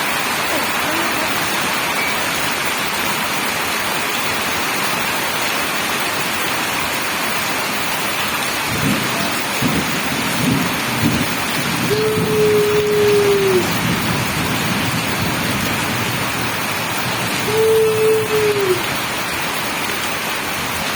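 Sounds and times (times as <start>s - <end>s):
heavy rain hissing: 0.0s - 20.9s.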